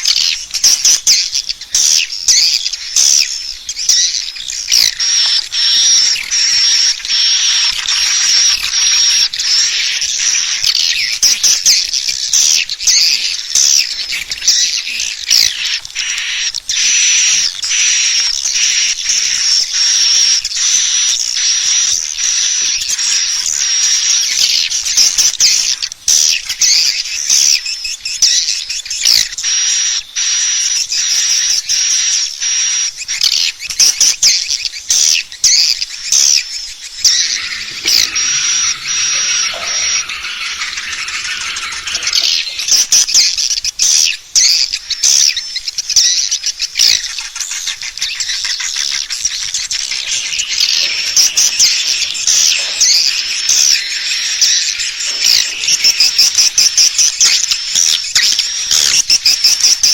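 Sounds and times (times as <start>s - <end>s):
rapid chirping of swiftlets: 34.2s - 59.0s
thin steady high tone: 36.9s - 43.6s.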